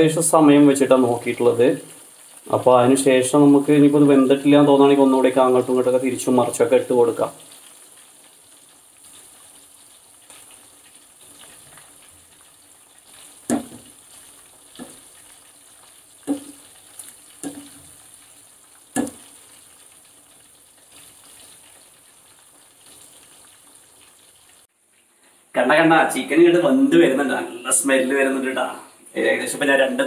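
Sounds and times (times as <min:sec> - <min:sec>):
chicken sizzling in oil: 0:00.0 - 0:24.7
spatula knocking on pan: 0:13.5 - 0:13.9, 0:14.8 - 0:15.0, 0:16.2 - 0:16.6, 0:17.4 - 0:17.9, 0:18.9 - 0:19.3.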